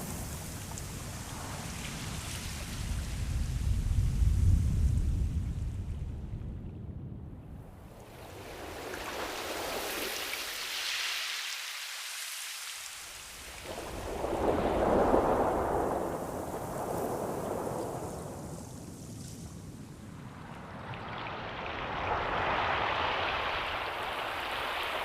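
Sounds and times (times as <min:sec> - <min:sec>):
ocean waves surging: 0:08.0 - 0:19.0, 0:20.2 - 0:25.0.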